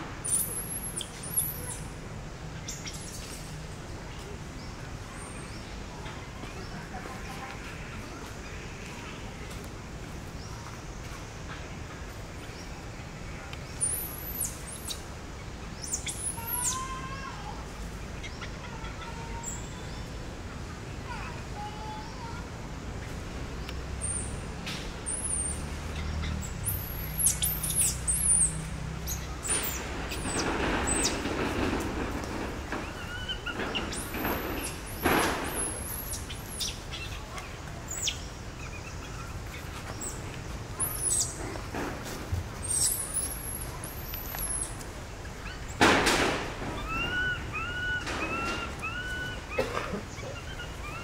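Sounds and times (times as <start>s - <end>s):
birds chirping: 0.0s - 51.0s
rising-and-falling bird calls: 15.7s - 17.6s, 46.6s - 51.0s.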